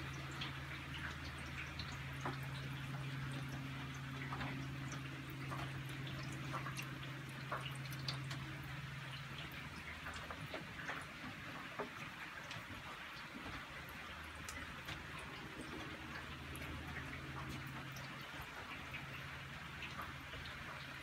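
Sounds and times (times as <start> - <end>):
low electrical hum: 0.0 - 21.0
rain dripping and pattering: 0.0 - 21.0.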